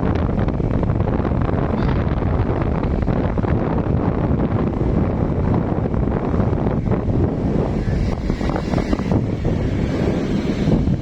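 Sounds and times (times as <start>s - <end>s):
road noise: 0.0s - 11.0s
wind rush over microphone: 0.0s - 11.0s
motorcycle engine: 6.5s - 11.0s.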